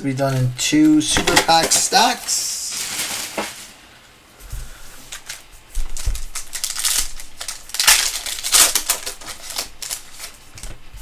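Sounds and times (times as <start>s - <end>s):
wrappers crinkling and rustling: 0.2s - 4.0s, 5.0s - 10.8s.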